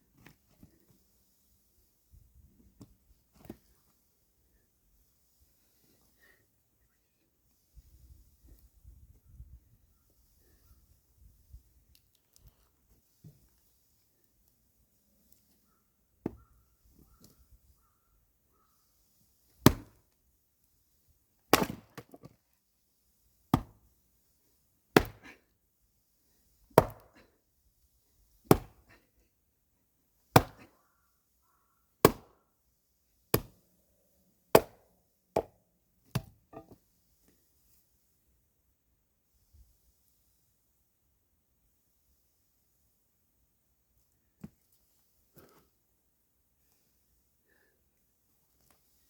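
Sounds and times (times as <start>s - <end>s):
axe chopping firewood: 19.6s - 20.0s, 21.5s - 22.4s, 23.5s - 23.8s, 25.0s - 25.4s, 26.8s - 27.2s, 28.5s - 28.9s, 30.3s - 30.7s, 32.0s - 32.4s, 33.3s - 33.6s, 34.5s - 34.8s, 35.4s - 36.8s.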